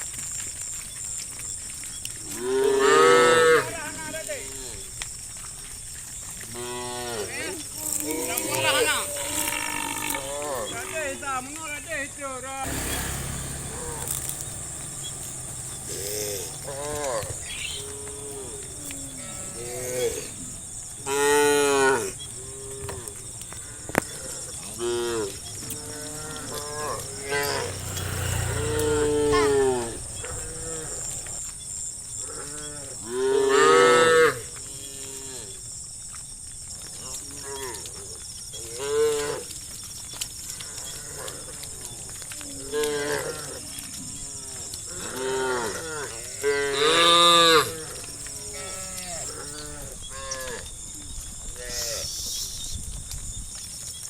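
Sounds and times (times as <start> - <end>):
cows mooing: 2.3 - 3.7, 12.6 - 31.5, 32.2 - 35.5, 42.6 - 50.7.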